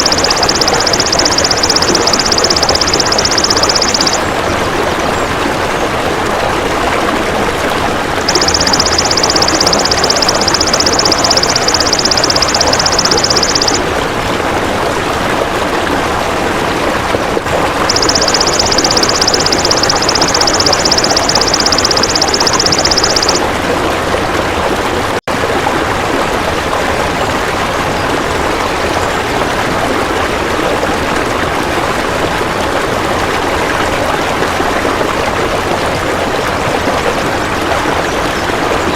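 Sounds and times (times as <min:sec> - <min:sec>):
rushing stream water: 0:13.8 - 0:18.0.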